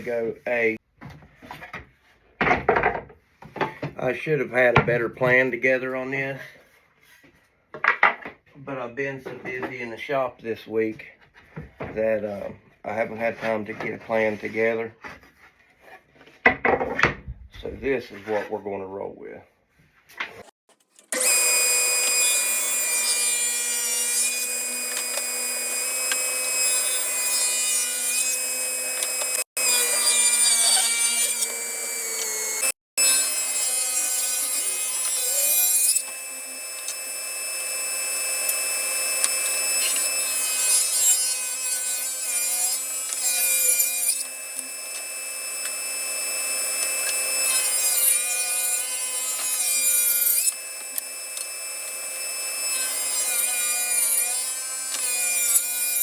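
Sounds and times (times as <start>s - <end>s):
power saw cutting wood: 20.3s - 56.0s.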